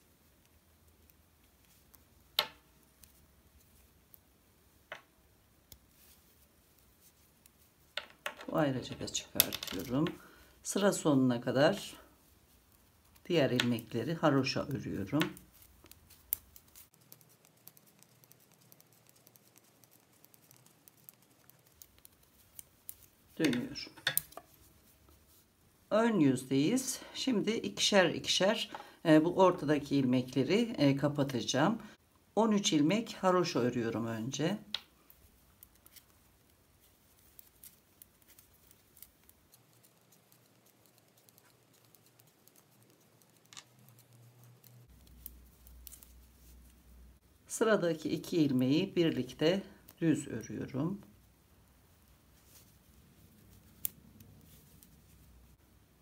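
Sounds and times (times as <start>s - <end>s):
knitting needles clicking: 0.4s - 10.3s, 12.5s - 25.4s, 34.6s - 46.8s, 52.2s - 55.5s.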